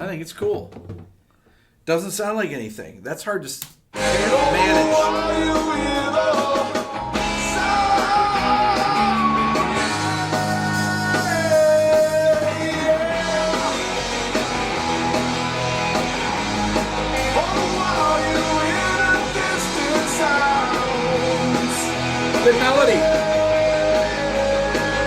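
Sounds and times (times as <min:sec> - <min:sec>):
person singing: 0:04.0 - 0:14.0, 0:17.3 - 0:25.0
rock band with electric guitar: 0:04.0 - 0:25.0.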